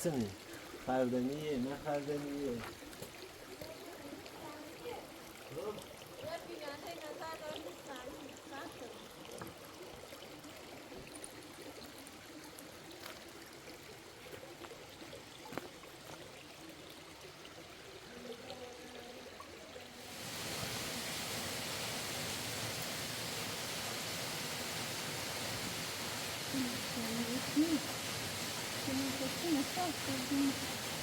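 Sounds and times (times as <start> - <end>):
stream water flowing: 0.0 - 31.0
loud rush of water: 20.0 - 31.0.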